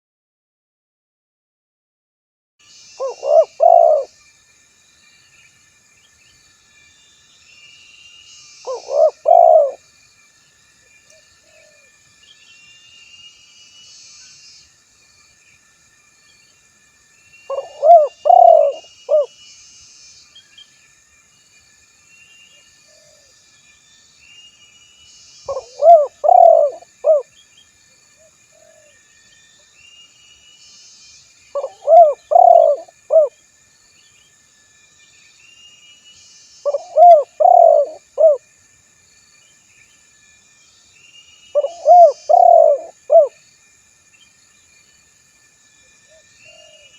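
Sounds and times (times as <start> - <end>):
small birds chirping: 2.7 - 4.1, 5.0 - 9.8, 17.2 - 20.8, 22.2 - 27.8, 28.6 - 33.3, 35.3 - 38.4, 40.8 - 43.3
dove cooing: 3.0 - 4.1, 8.7 - 9.8, 17.5 - 19.3, 25.5 - 27.3, 31.6 - 33.3, 36.7 - 38.4, 41.6 - 43.4, 46.5 - 46.9.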